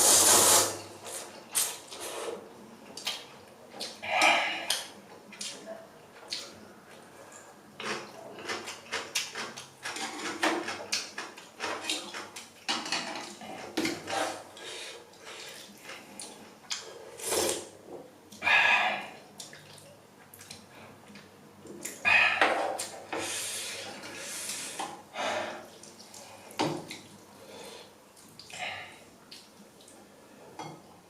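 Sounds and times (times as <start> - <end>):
noodles being slurped: 17.1 - 17.7.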